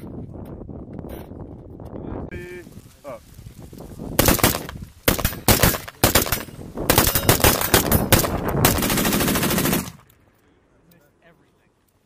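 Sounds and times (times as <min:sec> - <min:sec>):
rapid gunfire bursts: 0:04.2 - 0:10.0.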